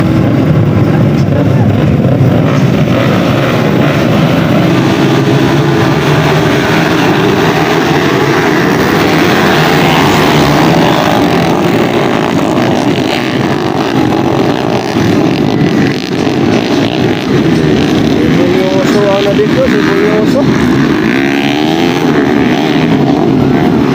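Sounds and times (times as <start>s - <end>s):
motorcycle engines revving: 0.0s - 23.9s.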